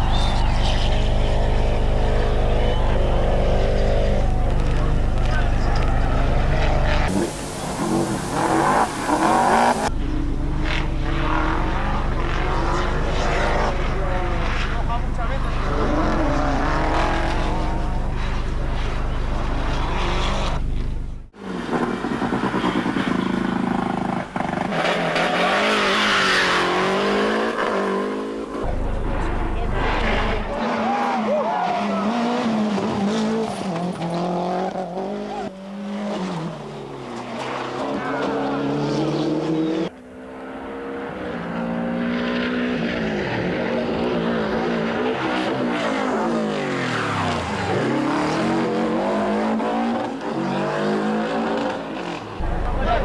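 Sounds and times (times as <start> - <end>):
loud rushing noise: 0.0 - 10.3
rally car engines revving: 0.0 - 53.0.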